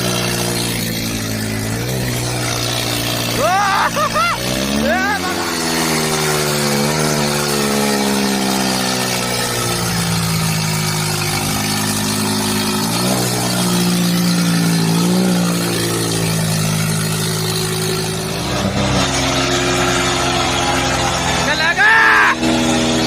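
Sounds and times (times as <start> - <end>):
diesel tractor engines under load: 0.0 - 23.0.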